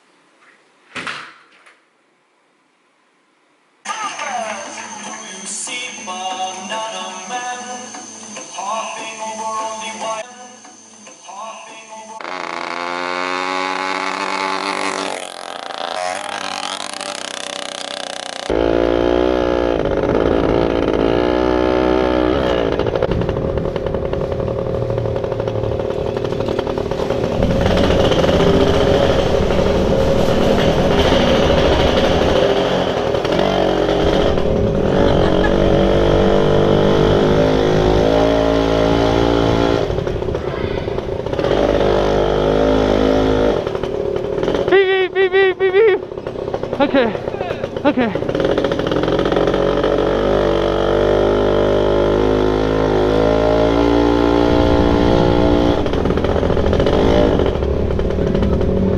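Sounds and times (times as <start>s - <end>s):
dirt bike engine revving: 12.2s - 58.9s.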